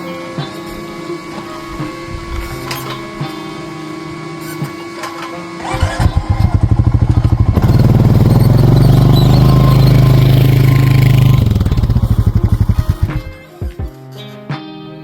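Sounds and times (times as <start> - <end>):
quad bike engine putting: 0.0 - 13.5.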